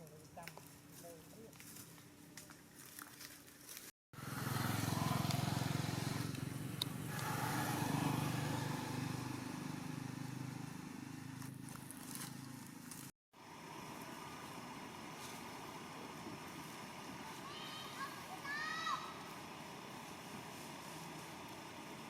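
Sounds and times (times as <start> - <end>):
motor engine running: 4.2 - 17.4.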